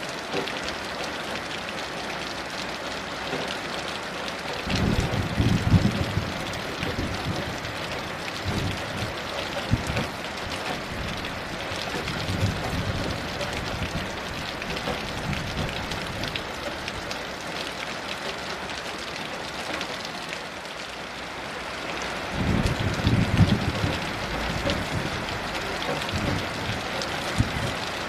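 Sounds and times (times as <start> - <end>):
heavy rain: 0.0 - 28.0
distant thunder rumble: 4.7 - 17.2, 22.3 - 28.0.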